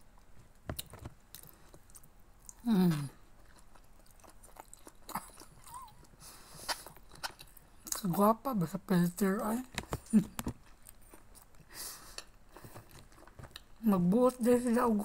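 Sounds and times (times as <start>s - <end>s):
soft chewing: 0.0s - 8.8s, 9.6s - 14.4s
woman humming: 2.6s - 3.2s.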